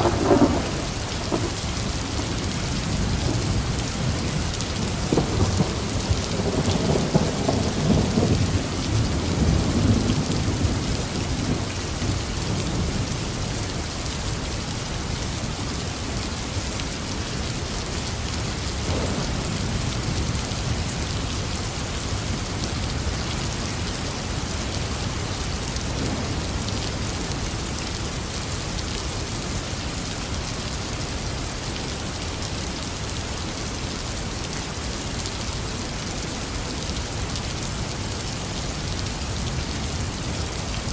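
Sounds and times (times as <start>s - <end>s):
thunder rumbling: 0.0s - 11.7s, 18.8s - 20.8s
heavy rain falling: 0.0s - 40.9s.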